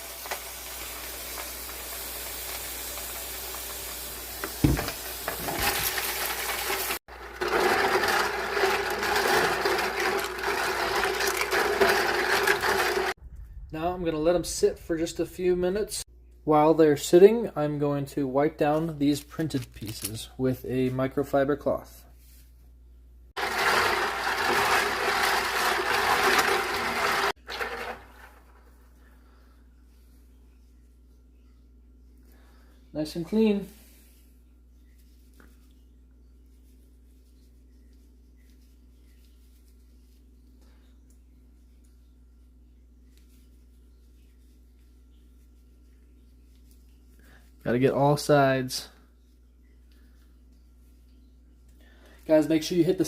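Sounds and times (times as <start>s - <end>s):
water running into a tub: 0.0s - 13.2s, 23.4s - 28.5s
cloth rubbing plastic pieces: 4.6s - 13.2s, 18.8s - 20.3s, 23.4s - 28.9s.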